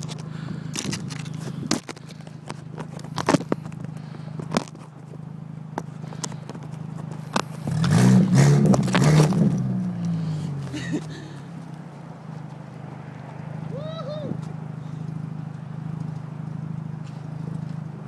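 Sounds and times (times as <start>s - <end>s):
sharp clicks and crunches: 0.0s - 10.2s
car engine running: 0.0s - 18.0s.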